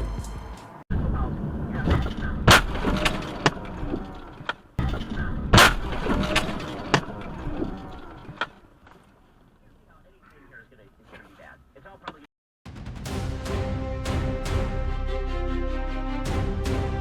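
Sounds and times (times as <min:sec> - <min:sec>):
low rumble: 0:12.7 - 0:17.0.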